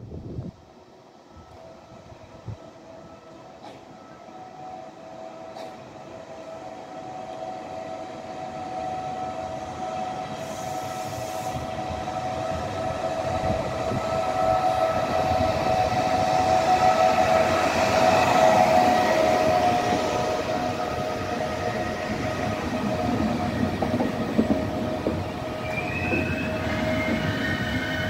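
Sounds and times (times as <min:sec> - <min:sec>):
train approaching: 0:00.0 - 0:28.0
wheels rumbling on rail: 0:00.0 - 0:28.0
locomotive whine: 0:00.4 - 0:28.0.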